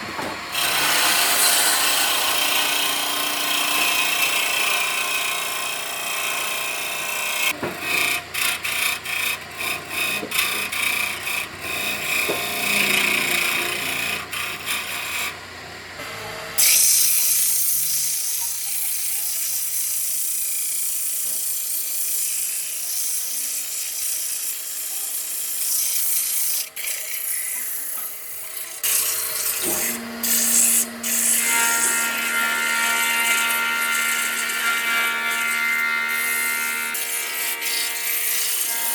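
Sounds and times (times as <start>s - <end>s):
small motor whining: 0.0s - 38.9s
rasping or sanding wood: 6.8s - 15.4s, 16.6s - 38.9s
power tool hissing: 16.6s - 38.9s.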